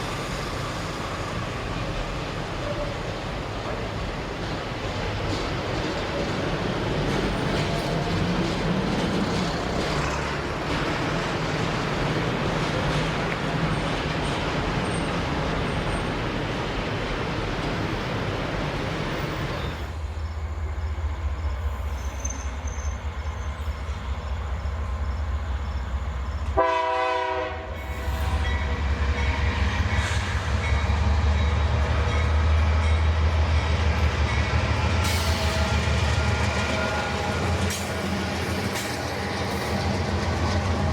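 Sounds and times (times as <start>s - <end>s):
locomotive engine rumble: 0.0s - 40.9s
freight wagons rolling on rails: 1.4s - 20.0s
train horn blast: 26.5s - 30.6s, 35.1s - 38.2s.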